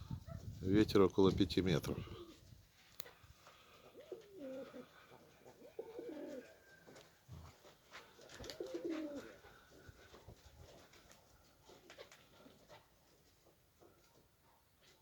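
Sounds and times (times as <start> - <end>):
pigeons cooing: 3.6 - 7.0, 8.2 - 10.3.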